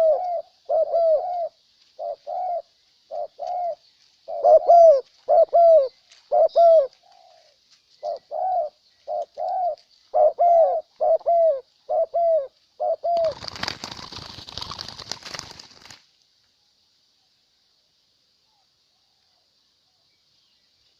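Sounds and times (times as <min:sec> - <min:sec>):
doves cooing: 0:00.0 - 0:15.5.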